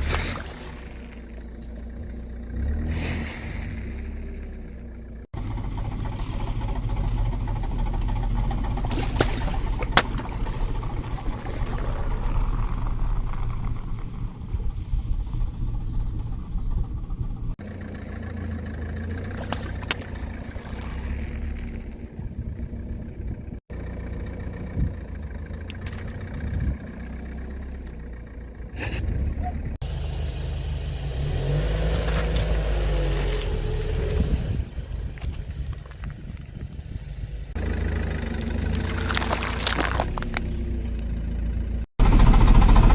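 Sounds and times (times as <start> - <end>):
car engine running at low speed: 0.0 - 42.9
objects cracking under tyres: 8.8 - 14.6, 29.9 - 40.8.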